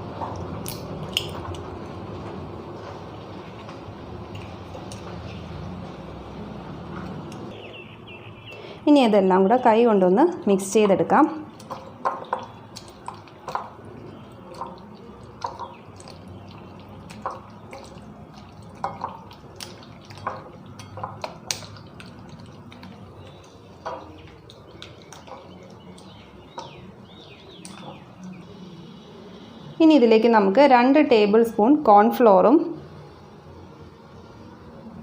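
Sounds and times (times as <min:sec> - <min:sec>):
wet squelches of chicken mixing: 0:00.0 - 0:08.8, 0:10.7 - 0:28.7.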